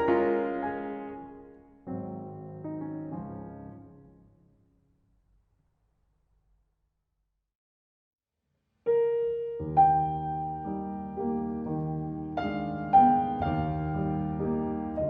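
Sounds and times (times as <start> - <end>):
solo piano music: 0.0 - 4.6, 8.9 - 15.0.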